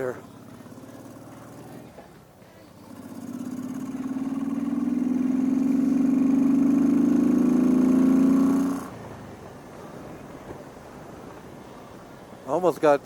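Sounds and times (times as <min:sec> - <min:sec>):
motorcycle engine pulling away: 0:00.0 - 0:09.4.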